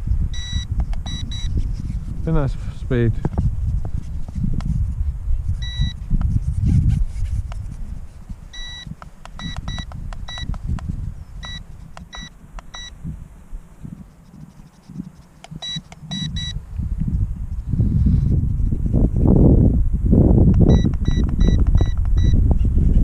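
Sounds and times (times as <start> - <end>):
wind rumble on microphone: 0.0 - 23.0
short high beeps: 0.3 - 1.5, 5.6 - 6.0, 8.6 - 10.5, 11.4 - 13.0, 15.5 - 16.6, 20.7 - 22.4.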